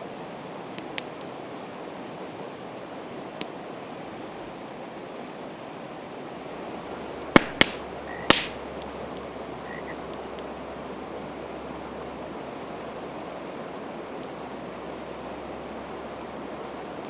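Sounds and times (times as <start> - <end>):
campfire hissing: 0.0 - 17.0
wood popping sharply: 7.3 - 8.6.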